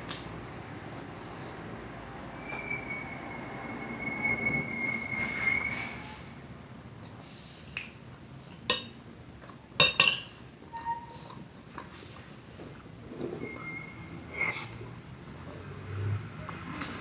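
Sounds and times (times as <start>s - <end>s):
cutlery clinking against a plate: 8.7s - 9.0s, 9.8s - 10.4s.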